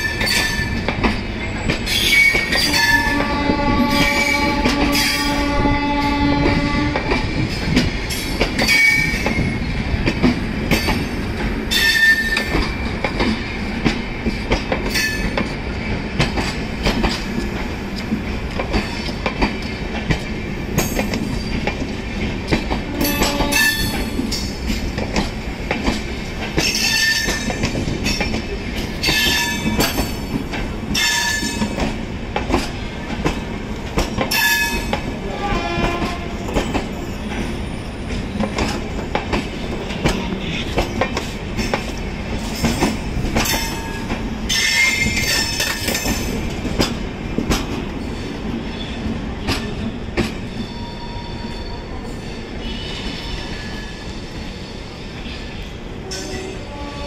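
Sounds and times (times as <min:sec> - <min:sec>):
wheels clacking over rail joints: 0:00.0 - 0:50.5
wheels rumbling on rails: 0:00.0 - 0:57.0
high wheel squeals: 0:50.5 - 0:55.3.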